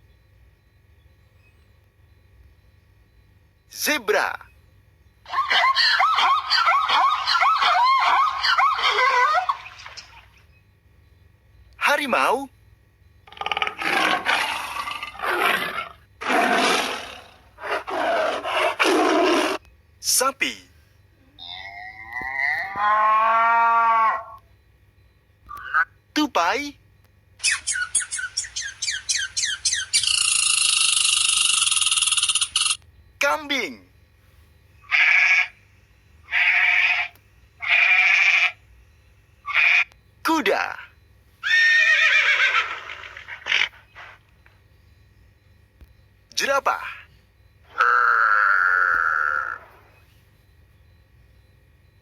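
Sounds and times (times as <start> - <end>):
tiger roaring: 13.3 - 19.6, 21.4 - 24.4, 47.6 - 50.0
goat bleating: 34.9 - 35.5.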